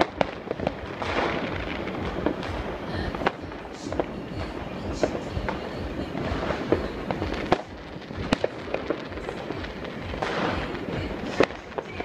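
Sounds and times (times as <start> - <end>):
firecrackers crackling: 0.0 - 12.0
fireworks bangs: 0.0 - 12.0.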